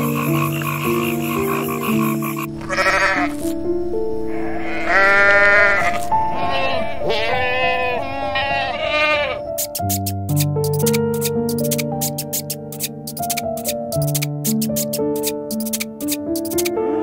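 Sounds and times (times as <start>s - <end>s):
soft piano music: 0.0s - 17.0s
goats bleating: 2.5s - 3.5s, 4.3s - 9.5s.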